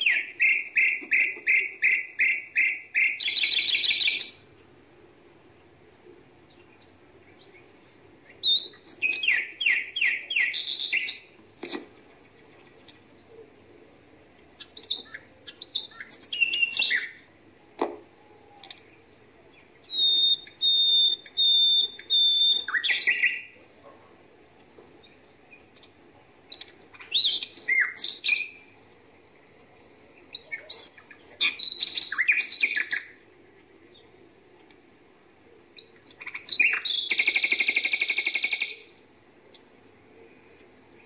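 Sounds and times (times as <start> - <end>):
bird whistled notes: 0.0 - 4.4, 14.8 - 17.2, 19.9 - 23.5
small birds chirping and whistling: 0.0 - 4.5, 6.5 - 13.3, 14.6 - 17.3, 18.0 - 23.9, 25.0 - 33.2, 35.8 - 39.0.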